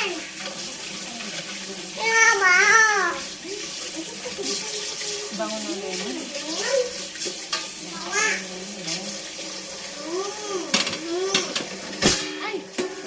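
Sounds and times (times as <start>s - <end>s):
pot simmering: 0.0s - 13.0s
child vocalizing: 2.0s - 3.7s, 6.3s - 7.0s, 7.9s - 8.5s, 10.0s - 11.6s.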